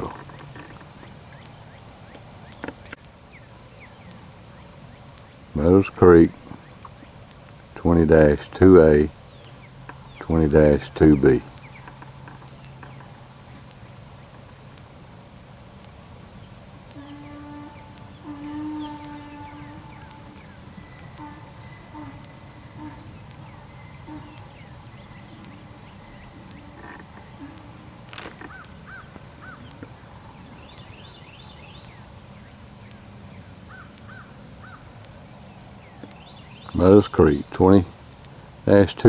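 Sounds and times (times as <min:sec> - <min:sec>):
drawn-out animal calls: 0:00.0 - 0:01.3, 0:05.6 - 0:06.9, 0:07.8 - 0:09.3, 0:09.9 - 0:13.2, 0:16.9 - 0:30.7, 0:36.7 - 0:37.9, 0:38.7 - 0:39.0
high insect drone: 0:00.0 - 0:39.0.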